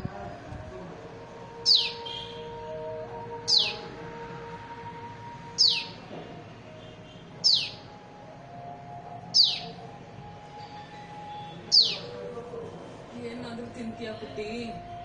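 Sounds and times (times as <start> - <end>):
bird chick chirping: 1.6 - 2.2, 3.5 - 3.8, 5.6 - 6.0, 7.4 - 7.9, 9.4 - 9.7, 11.7 - 12.1.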